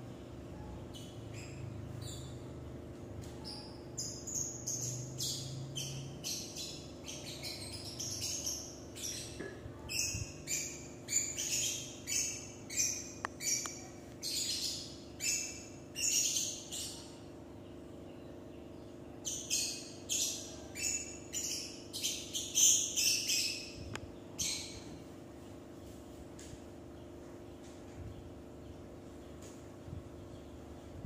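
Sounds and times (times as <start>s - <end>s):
bird chirping: 0.5s - 25.1s.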